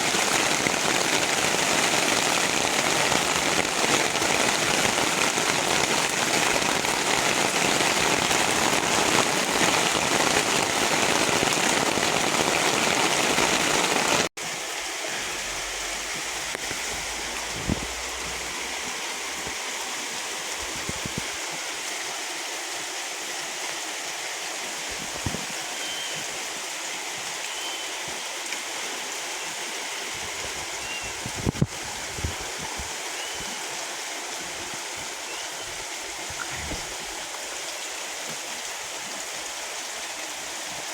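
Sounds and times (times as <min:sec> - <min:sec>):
heavy rain falling: 0:00.0 - 0:40.9
light rain: 0:00.0 - 0:40.9
water drips: 0:14.5 - 0:19.8, 0:30.6 - 0:40.2.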